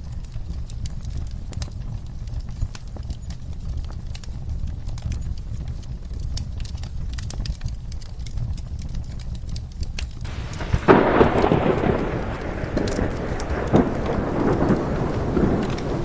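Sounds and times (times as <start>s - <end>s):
fireplace crackling: 0.0s - 16.0s
rain rumbling: 0.0s - 16.0s
rumbling thunderclap: 10.3s - 16.0s.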